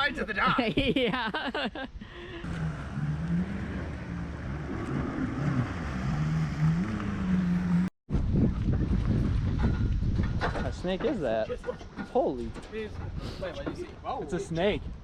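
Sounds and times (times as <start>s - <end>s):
motorboat engine running: 2.5s - 7.9s.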